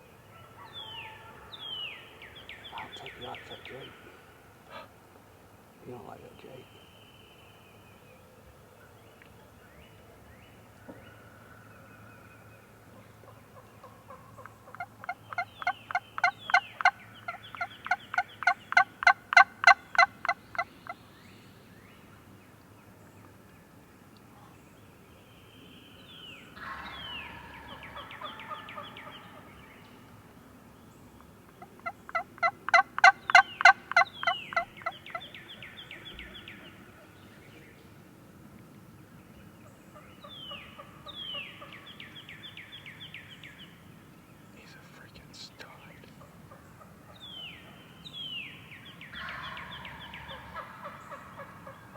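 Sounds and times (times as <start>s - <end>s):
wild turkey yelping: 2.6s - 5.0s, 12.9s - 21.0s, 26.6s - 30.2s, 31.5s - 37.1s, 49.1s - 51.9s.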